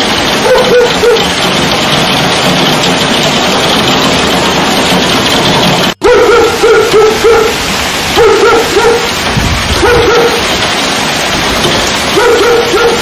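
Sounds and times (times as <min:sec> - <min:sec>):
heavy rain pouring: 0:00.0 - 0:13.0
dog barking: 0:00.4 - 0:01.3, 0:06.0 - 0:09.2, 0:09.8 - 0:10.5, 0:12.1 - 0:13.0.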